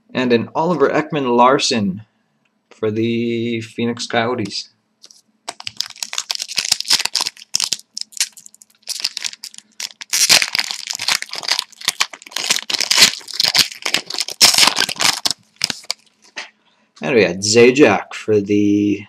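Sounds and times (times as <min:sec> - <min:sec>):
wrappers tearing and crinkling: 0:05.0 - 0:16.4.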